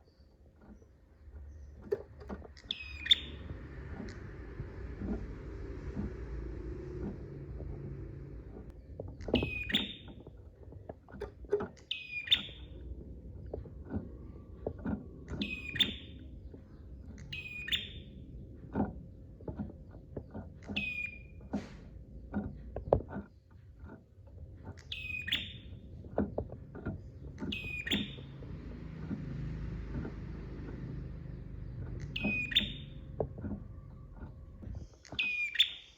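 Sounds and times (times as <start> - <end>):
low rumble: 2.7 - 11.4, 12.5 - 23.1, 25.6 - 35.0.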